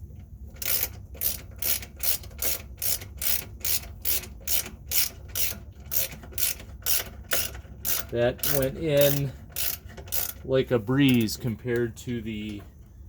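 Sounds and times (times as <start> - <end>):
ratchet wrench clicking: 0.6 - 10.4.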